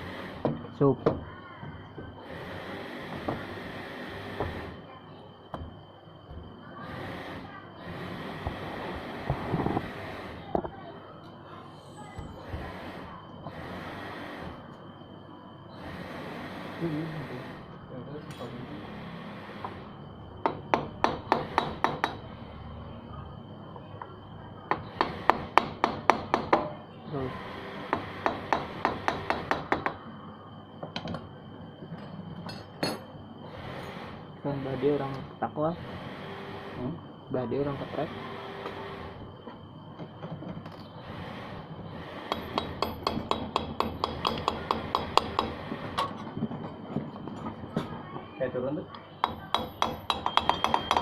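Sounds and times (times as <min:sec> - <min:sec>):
hammer tapping on metal: 0:20.4 - 0:22.2, 0:27.9 - 0:30.0, 0:42.3 - 0:46.1, 0:49.2 - 0:51.0.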